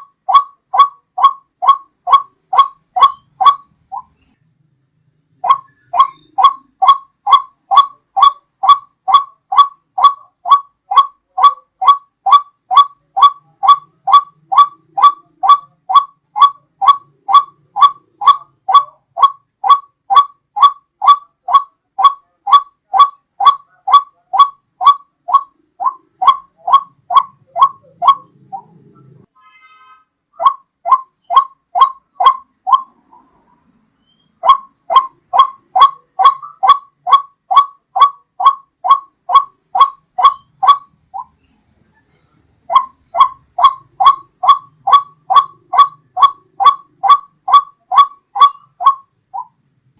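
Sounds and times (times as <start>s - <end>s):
bird calling short rising notes: 5.4s - 29.2s.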